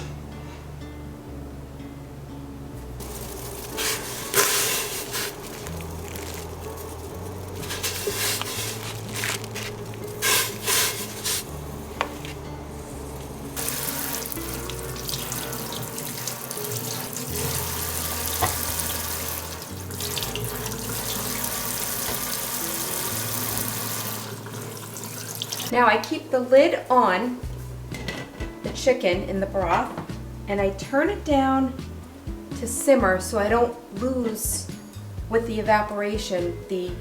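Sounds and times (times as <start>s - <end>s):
tap water running into sink: 3.0s - 12.3s, 13.2s - 25.7s.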